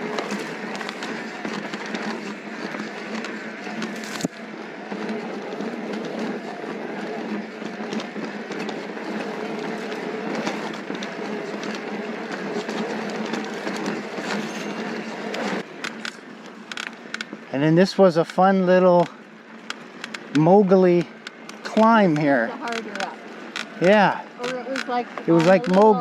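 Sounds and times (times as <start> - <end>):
bike clicks and rattles: 0.0 - 26.0
bike tyres rumbling on gravel: 0.0 - 26.0.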